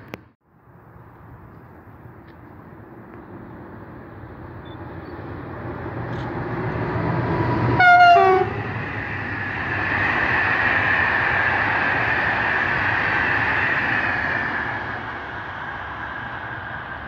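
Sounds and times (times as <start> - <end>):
electric locomotive passing: 0.5 - 17.0
coaches rumbling on rails: 1.2 - 17.0
train horn blast: 7.8 - 8.7.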